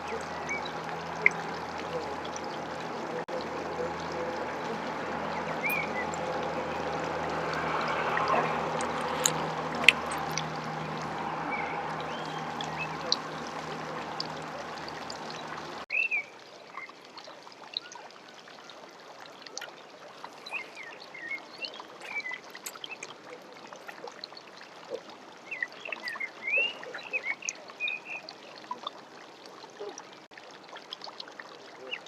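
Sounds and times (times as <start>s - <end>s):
birds chirping and singing: 4.1s - 6.7s.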